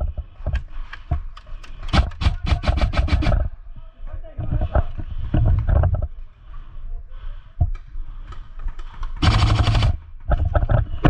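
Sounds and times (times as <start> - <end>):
airsoft rifle full-auto burst: 1.9 - 3.4, 9.2 - 10.0.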